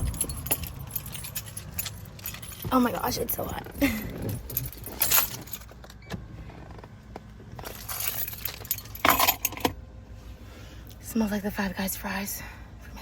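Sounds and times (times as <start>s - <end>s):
objects rustling and clattering: 0.0s - 9.8s
idling car and air conditioning hum: 0.0s - 13.0s.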